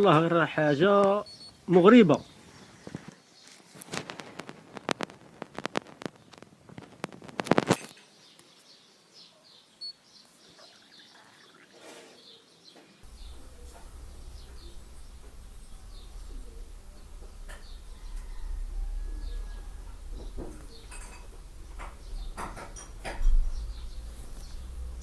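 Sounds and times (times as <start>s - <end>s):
faint bird chirps: 13.0s - 25.0s
low rumble: 13.0s - 25.0s
pigeon cooing: 13.0s - 25.0s
sharp clicks and knocks: 13.0s - 25.0s.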